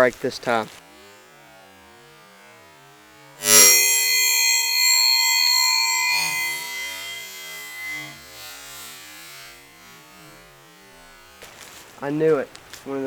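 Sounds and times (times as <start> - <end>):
steel knife striking metal: 3.4 - 8.8
bright metallic ringing: 3.4 - 9.1.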